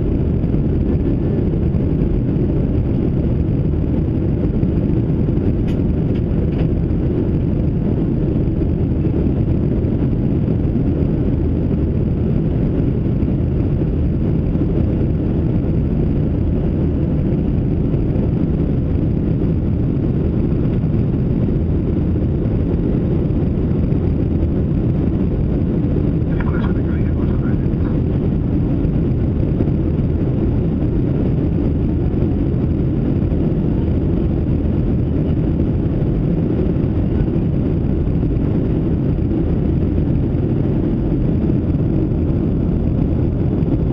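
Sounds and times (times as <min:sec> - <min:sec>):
jet engine rumble: 0:00.0 - 0:43.9
rushing air: 0:19.4 - 0:43.9.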